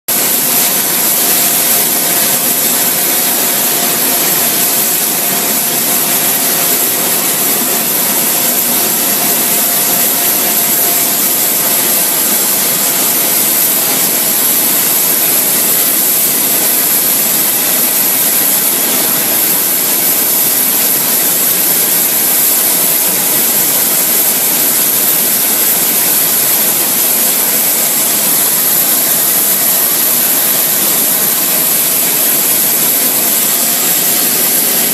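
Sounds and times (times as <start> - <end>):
high-pitched engine whine: 0.1 - 34.9
jet engine running: 0.1 - 34.9.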